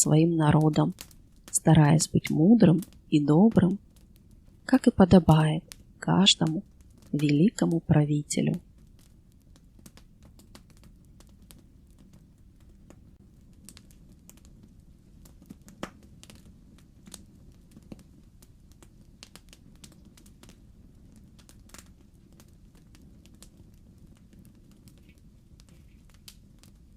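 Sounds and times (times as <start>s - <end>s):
low steady rumble: 0.0s - 13.6s
wood fire crackling: 0.0s - 26.9s.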